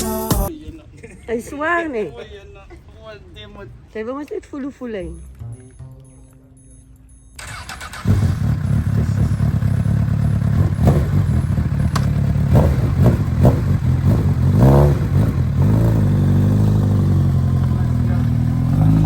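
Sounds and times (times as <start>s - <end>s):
motorcycle engine revving: 7.4s - 19.0s
motorcycle engine starting and running: 7.4s - 19.0s.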